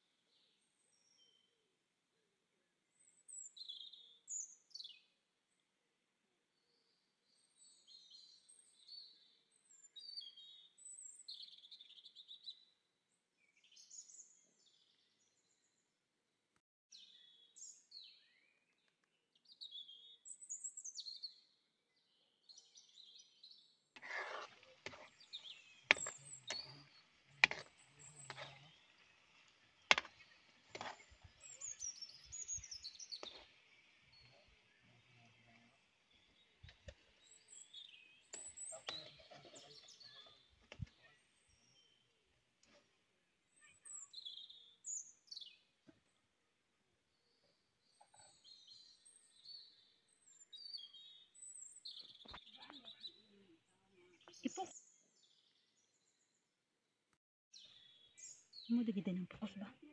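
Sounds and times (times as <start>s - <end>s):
birds chirping: 16.9s - 42.2s, 47.2s - 56.4s, 57.6s - 59.9s.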